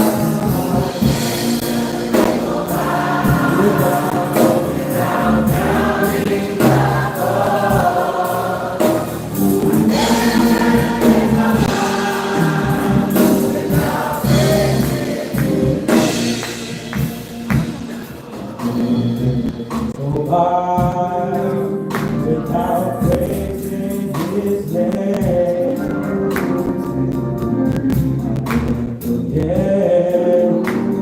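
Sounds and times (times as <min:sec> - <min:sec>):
tambourine beat: 0:00.0 - 0:19.9
gospel choir singing: 0:00.0 - 0:26.4.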